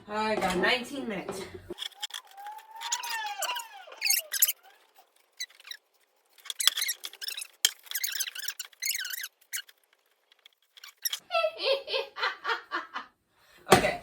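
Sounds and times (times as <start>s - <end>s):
parts rustling and scraping: 0.4s - 11.2s.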